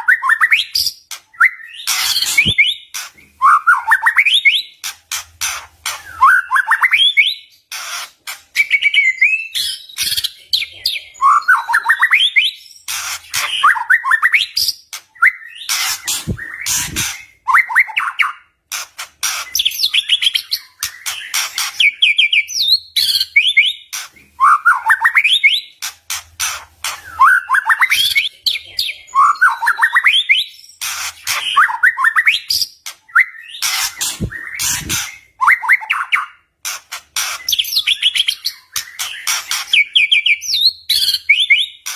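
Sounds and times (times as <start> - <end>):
songbird trills and whistles: 0.0 - 4.7, 29.1 - 36.4.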